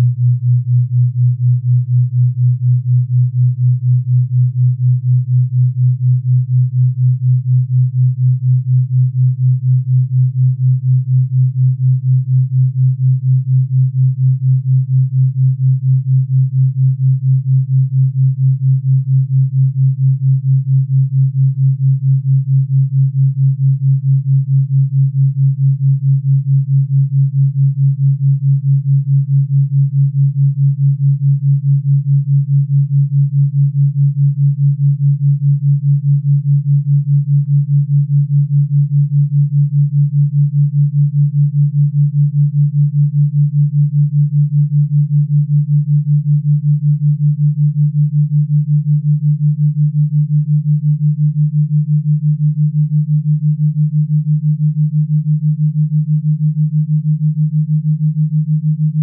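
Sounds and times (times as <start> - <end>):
low pulsing hum tone: 0.0 - 59.0.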